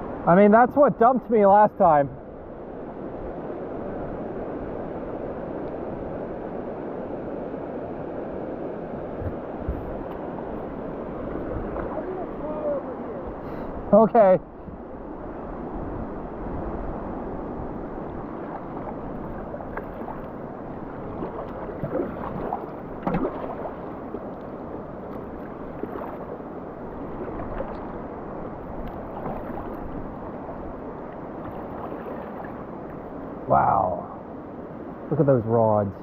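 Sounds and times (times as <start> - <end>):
whitewater rushing: 6.2 - 14.3, 16.1 - 34.0
water splashes: 9.2 - 13.2, 18.0 - 33.5.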